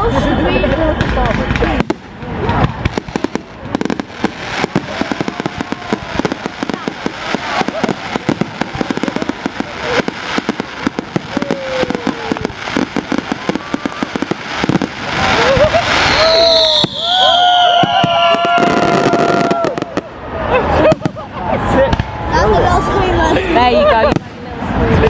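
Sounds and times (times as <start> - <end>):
fireworks crackling and popping: 0.0 - 22.3, 23.2 - 25.0.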